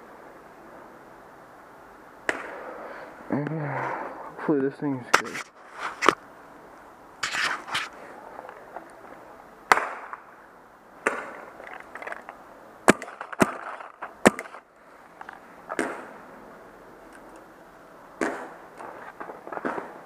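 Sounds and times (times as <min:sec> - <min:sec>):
paintball markers firing: 0:11.0 - 0:11.4, 0:12.9 - 0:14.6, 0:15.7 - 0:16.1, 0:18.2 - 0:18.6, 0:19.5 - 0:20.0.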